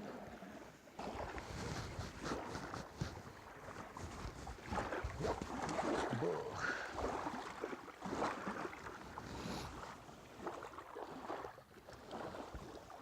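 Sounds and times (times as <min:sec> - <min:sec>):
small waves splashing: 0:00.0 - 0:13.0
wind on microphone: 0:01.0 - 0:07.4.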